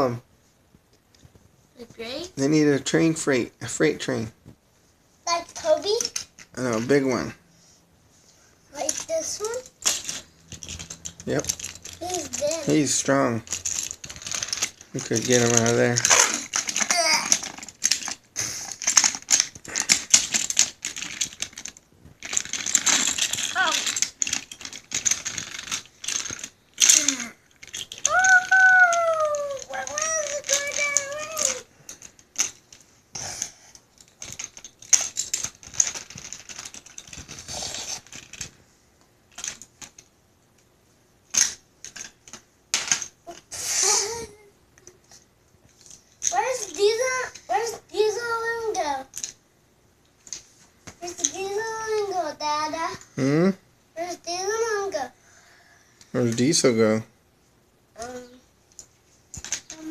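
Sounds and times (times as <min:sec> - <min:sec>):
toy trains clattering and clicking: 0:05.3 - 0:07.3, 0:08.7 - 0:38.6, 0:39.3 - 0:40.1, 0:41.3 - 0:49.4, 0:50.2 - 0:53.1, 0:54.0 - 0:55.1, 0:56.1 - 0:57.0, 0:58.0 - 0:59.9.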